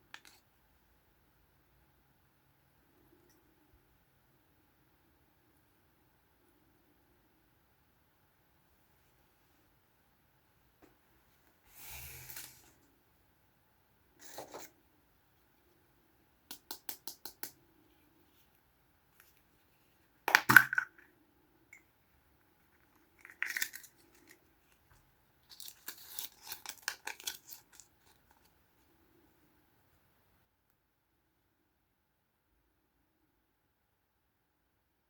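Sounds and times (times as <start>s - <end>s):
packaging tearing and crackling: 25.5s - 28.2s.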